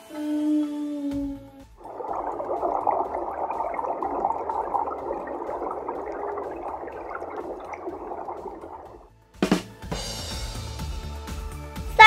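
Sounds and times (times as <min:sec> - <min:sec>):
underwater bubbling and gurgling: 0:01.8 - 0:09.0.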